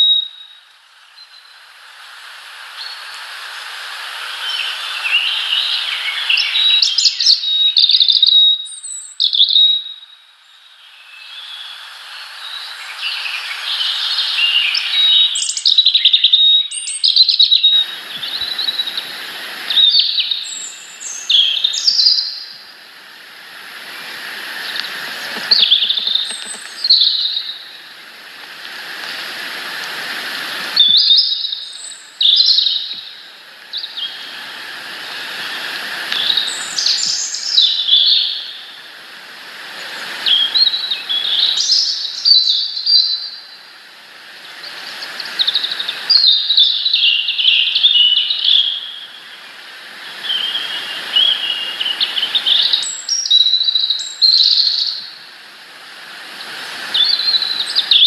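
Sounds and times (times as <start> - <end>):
songbirds chirping and trilling: 2.7 - 43.7, 44.3 - 55.2, 56.3 - 58.0
rushing background noise: 22.5 - 30.9.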